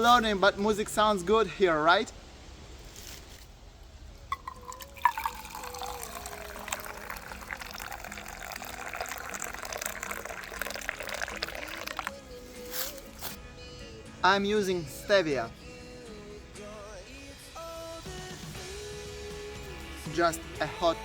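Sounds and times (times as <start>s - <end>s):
faint background music: 4.1s - 21.0s
tea pouring into cup: 4.3s - 13.4s.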